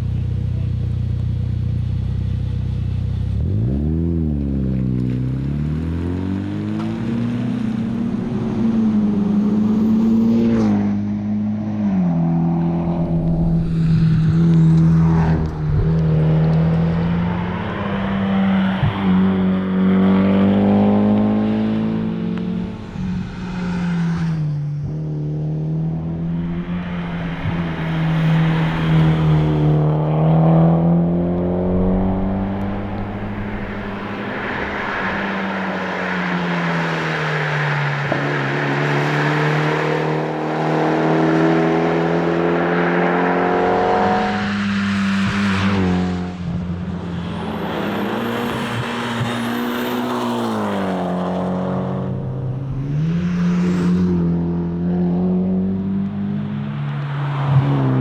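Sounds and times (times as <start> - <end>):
car engine revving hard: 25.1 - 53.3.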